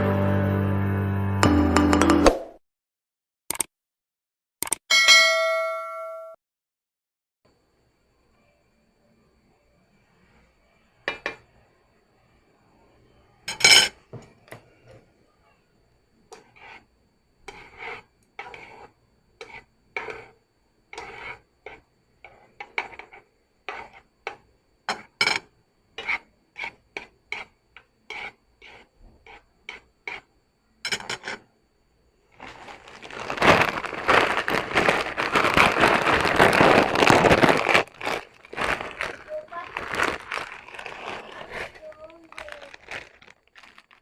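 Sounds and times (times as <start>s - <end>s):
utensils scraping a bowl: 17.5s - 25.0s, 26.0s - 30.3s
loud dense crackling: 32.4s - 44.0s.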